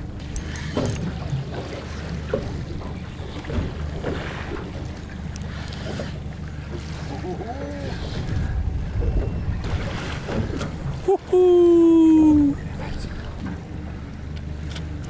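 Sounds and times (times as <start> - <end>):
water lapping against boat hull: 0.0 - 15.0
wind buffeting microphone: 7.8 - 11.3.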